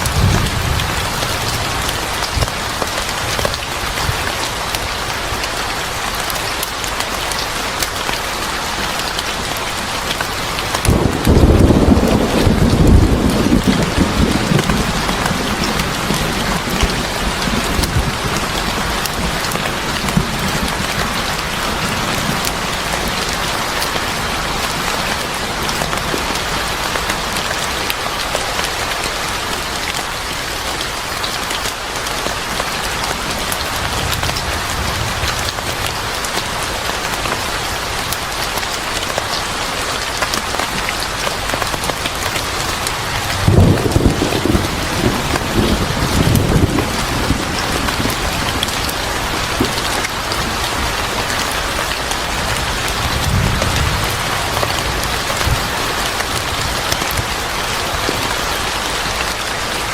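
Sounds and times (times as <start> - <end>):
thunder rumbling: 0.0 - 4.6, 10.5 - 23.6, 42.8 - 58.8
steady rain falling: 0.0 - 59.9.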